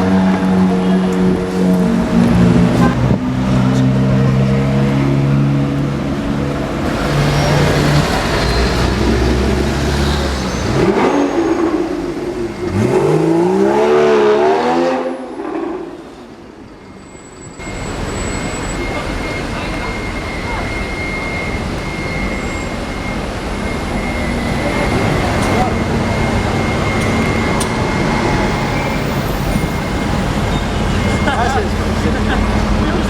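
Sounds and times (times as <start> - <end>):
sports car engine revving: 0.0 - 16.4.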